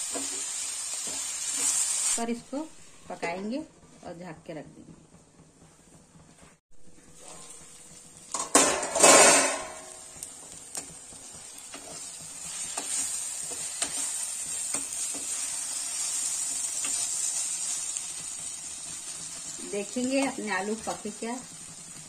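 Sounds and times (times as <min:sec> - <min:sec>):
vegetables sizzling in a pan: 0:00.0 - 0:03.6, 0:06.9 - 0:22.0
spatula tapping and scraping pan: 0:00.1 - 0:01.8, 0:08.3 - 0:21.2
metal lid clatter: 0:08.3 - 0:09.8.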